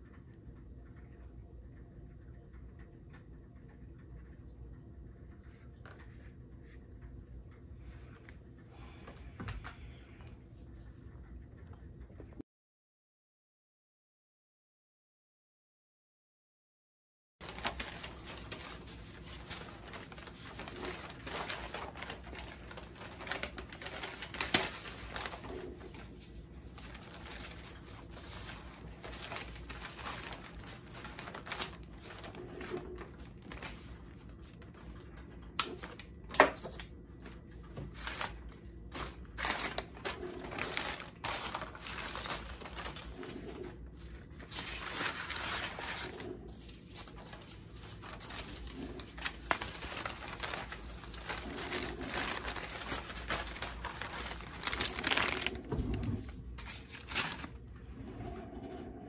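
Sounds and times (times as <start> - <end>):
rustling: 17.4 - 34.6, 37.9 - 57.6.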